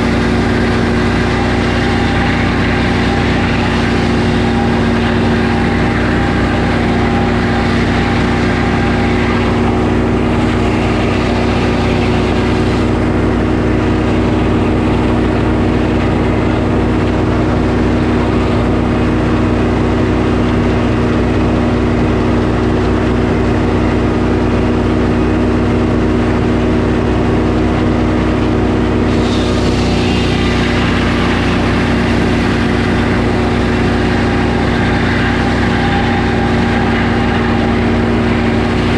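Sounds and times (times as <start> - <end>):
saw cutting log: 0.0 - 21.3, 29.0 - 38.9
sawmill engine running: 0.0 - 38.9
hiss: 29.1 - 38.9.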